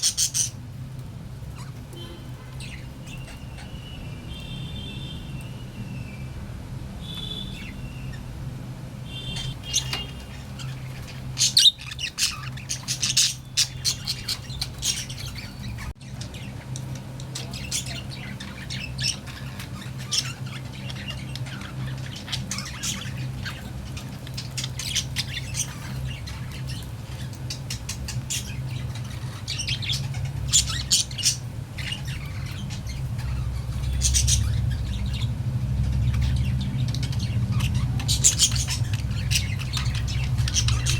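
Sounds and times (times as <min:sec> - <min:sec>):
budgerigars chattering: 0:00.0 - 0:00.6, 0:09.2 - 0:40.9.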